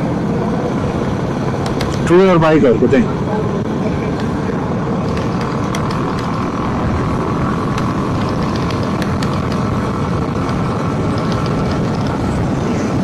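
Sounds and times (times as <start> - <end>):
motorcycle engine running: 3.0 - 13.0
wind rushing: 3.1 - 13.0.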